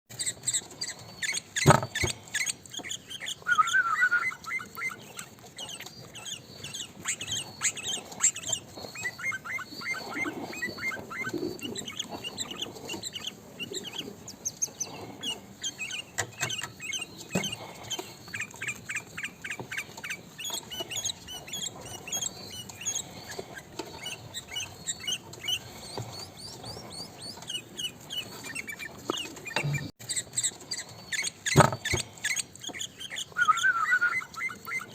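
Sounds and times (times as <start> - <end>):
bulbul chirping and chattering: 0.1 - 34.9.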